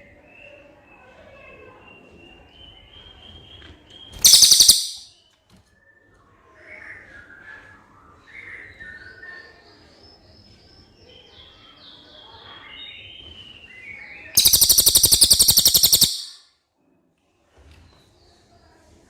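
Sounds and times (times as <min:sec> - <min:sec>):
bird chirping: 0:04.2 - 0:05.1, 0:14.4 - 0:16.4
harsh rapid rattle: 0:14.4 - 0:16.4.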